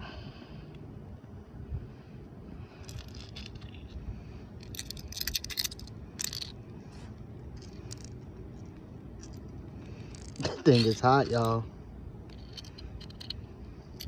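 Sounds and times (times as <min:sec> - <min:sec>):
low outdoor rumble: 0:00.0 - 0:14.0
small hard objects clinking: 0:04.6 - 0:06.6, 0:07.5 - 0:11.6, 0:12.3 - 0:13.4.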